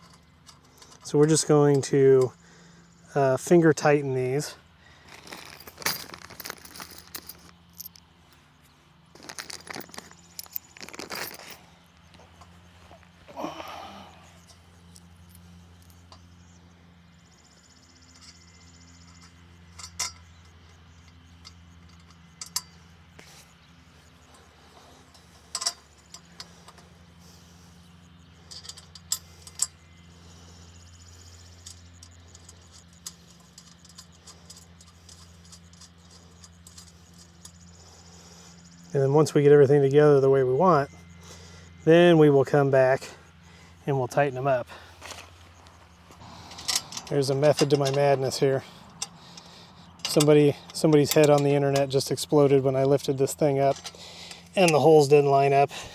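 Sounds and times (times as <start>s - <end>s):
small metal hardware clinking: 0.0s - 2.4s, 3.1s - 16.6s, 17.4s - 41.4s, 42.5s - 55.9s
faint steady hum: 0.0s - 55.9s.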